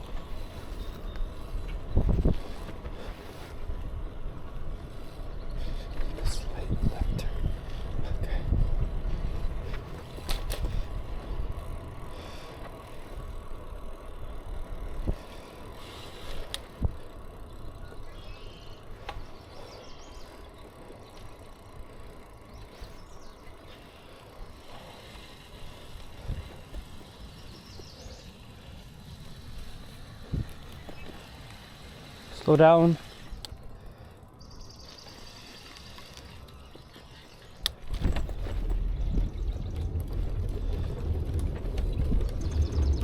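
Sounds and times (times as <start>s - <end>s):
wind and road noise: 0.0s - 43.0s
bicycle knocks and rattles: 8.0s - 13.2s, 36.0s - 43.0s.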